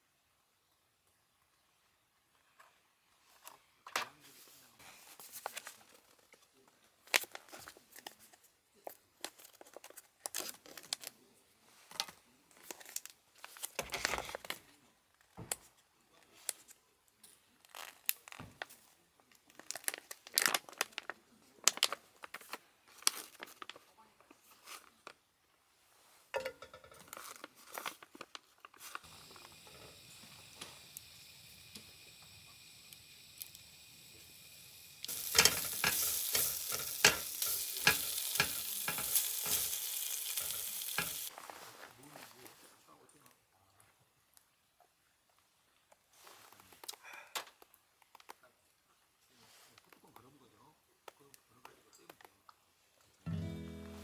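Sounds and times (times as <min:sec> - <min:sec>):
packaging crinkling and tearing: 0:09.3 - 0:11.2, 0:17.6 - 0:18.7, 0:19.5 - 0:23.8, 0:35.0 - 0:41.4
faint hiss: 0:28.8 - 0:43.3
food sizzling in hot pan: 0:29.0 - 0:41.3.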